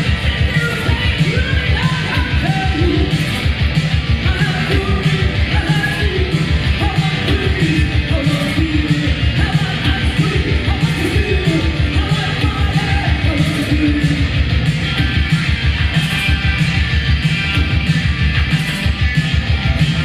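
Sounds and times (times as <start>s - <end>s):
loud rock music with singing: 0.0s - 20.0s.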